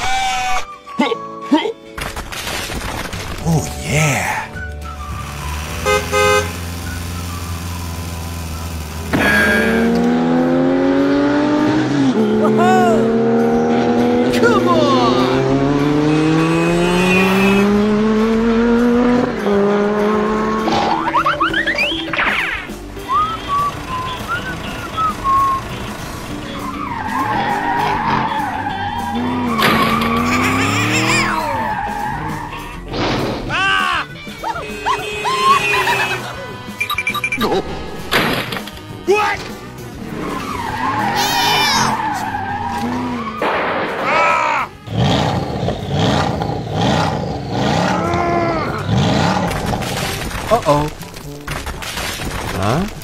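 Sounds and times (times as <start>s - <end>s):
background music: 0.0s - 53.0s
car engine starting and revving: 4.5s - 33.5s, 37.6s - 44.0s, 44.8s - 50.8s
car horn toot: 5.8s - 6.8s, 9.1s - 10.0s, 16.9s - 17.8s, 34.4s - 37.4s
tyres squealing: 20.9s - 37.5s, 39.0s - 43.4s.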